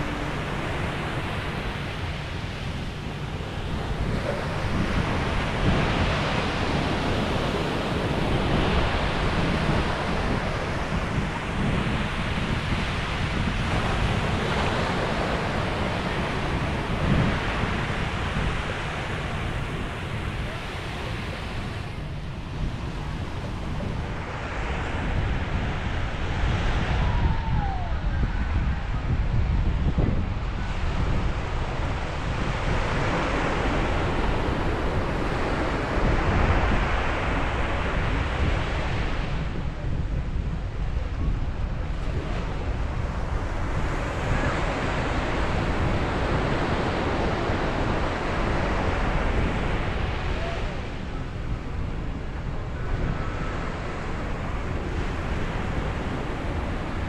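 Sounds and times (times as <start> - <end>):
sea waves breaking: 0.0 - 27.9
wind rumbling on microphone: 0.0 - 57.0.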